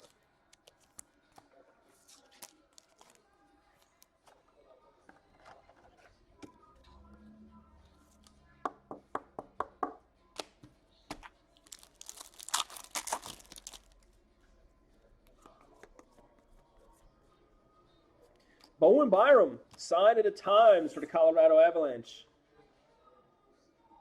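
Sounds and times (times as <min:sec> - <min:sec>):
wrapper crinkling and tearing: 0:02.1 - 0:03.2, 0:11.6 - 0:14.0.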